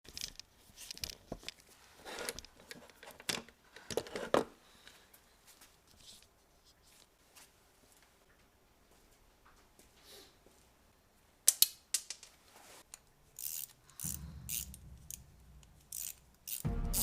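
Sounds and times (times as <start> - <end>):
background music: 16.5 - 17.0.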